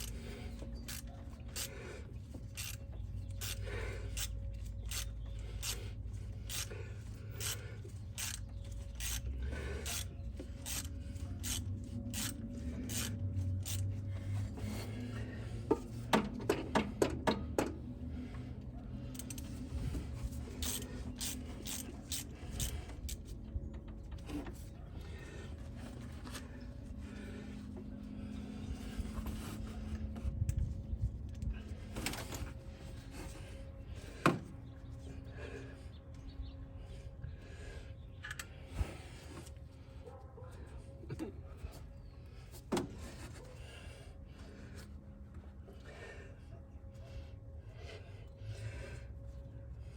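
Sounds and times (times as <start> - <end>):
low steady hum: 0.0 - 49.9
ratchet wrench clicking: 2.5 - 3.6, 4.2 - 5.8, 6.4 - 6.7, 7.4 - 13.9, 20.6 - 23.2.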